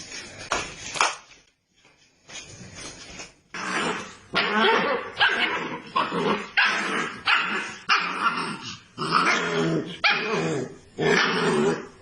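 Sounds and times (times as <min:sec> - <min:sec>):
dog barking: 0:06.6 - 0:08.1.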